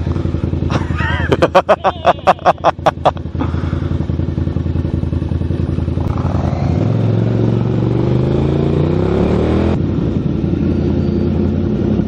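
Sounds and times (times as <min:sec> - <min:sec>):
motorcycle accelerating away: 0:02.5 - 0:12.0.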